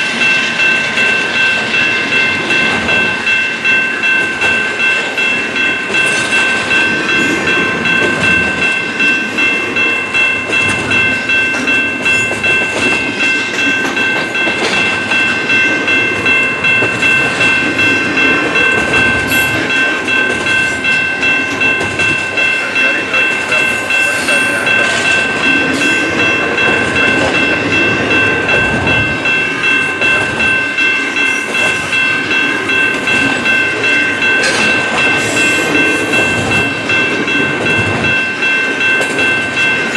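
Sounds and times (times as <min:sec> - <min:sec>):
freight train wheels rumbling: 0:00.0 - 0:39.9
railroad crossing bell ringing: 0:00.0 - 0:39.9.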